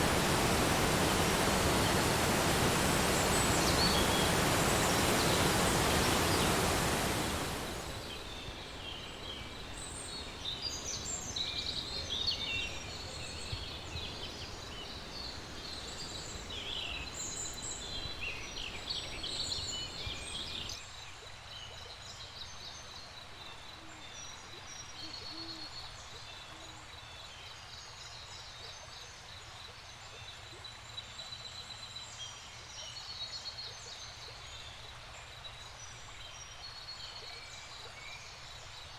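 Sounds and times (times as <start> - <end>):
birds chirping and calling: 0.0 - 20.7.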